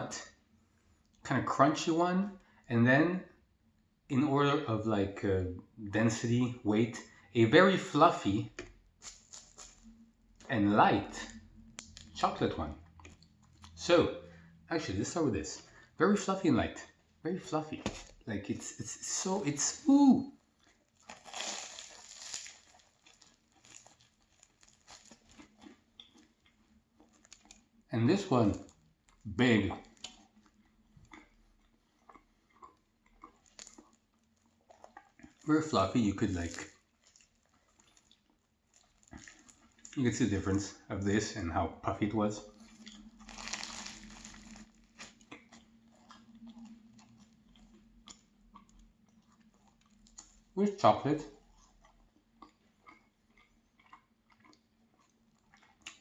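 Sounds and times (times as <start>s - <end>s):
small crackles: 9.0s - 10.6s, 20.5s - 31.3s, 42.6s - 50.4s
pastry crinkling and tearing: 9.0s - 12.4s, 17.8s - 30.9s, 32.7s - 40.7s, 42.6s - 50.4s.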